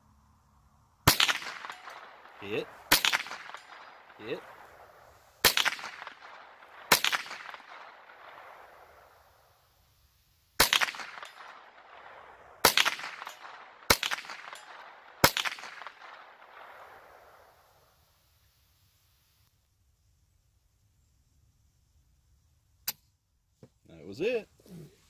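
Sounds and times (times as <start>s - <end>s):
rifle shots with echo: 1.0s - 9.6s, 10.6s - 17.8s.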